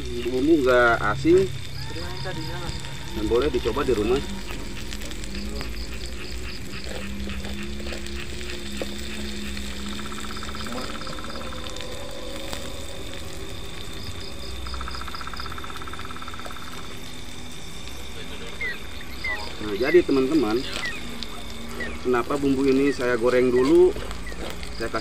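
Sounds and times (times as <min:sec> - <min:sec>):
frogs rapid trilling: 0:00.0 - 0:25.0
high insect whine: 0:00.0 - 0:25.0
paste sizzling in oil: 0:00.0 - 0:25.0.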